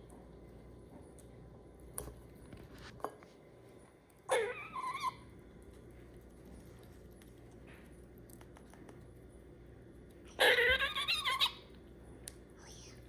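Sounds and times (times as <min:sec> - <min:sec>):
squirrel squeaky calls: 0:10.4 - 0:11.7.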